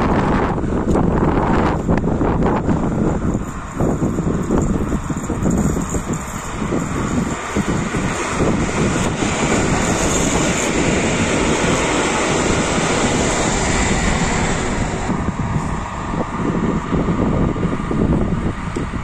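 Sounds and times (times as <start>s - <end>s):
train passing close by: 0.0s - 19.0s.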